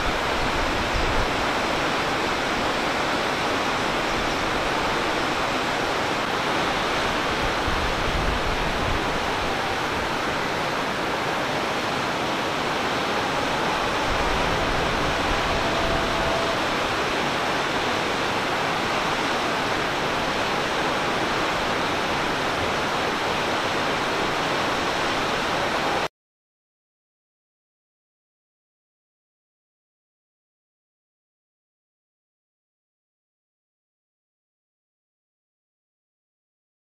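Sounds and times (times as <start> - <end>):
waterfall rushing: 0.0 - 26.1.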